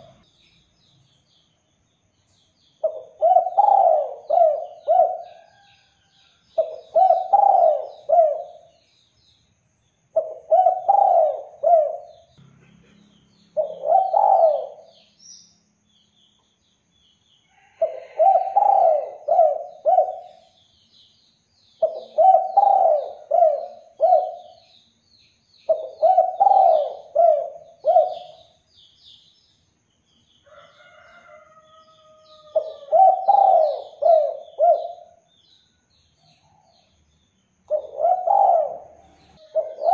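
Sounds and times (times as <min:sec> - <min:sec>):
small birds chirping: 0:00.0 - 0:39.9
dove cooing: 0:02.8 - 0:05.7, 0:06.6 - 0:08.7, 0:10.2 - 0:12.3, 0:13.6 - 0:15.0, 0:17.8 - 0:20.5, 0:21.8 - 0:24.6, 0:25.7 - 0:28.5, 0:32.3 - 0:35.2, 0:37.7 - 0:39.9.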